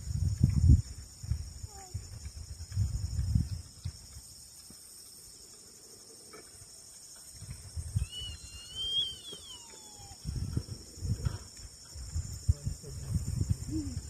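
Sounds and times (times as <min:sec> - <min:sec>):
insects chirping: 0:00.0 - 0:14.0
wavering whistled call: 0:07.9 - 0:10.7.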